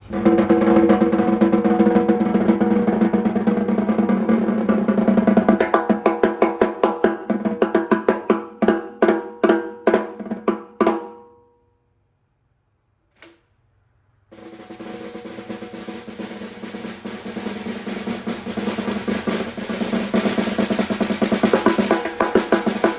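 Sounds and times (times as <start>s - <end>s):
snare drum roll and strokes: 0.0s - 10.8s, 14.3s - 22.9s.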